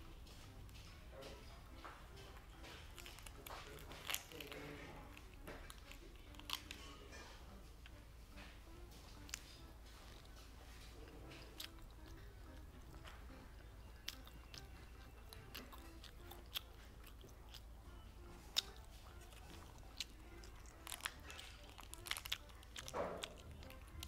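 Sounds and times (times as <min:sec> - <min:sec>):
chewing gummy candy: 0:00.3 - 0:24.0
wet mouth clicks and smacks: 0:11.3 - 0:24.0.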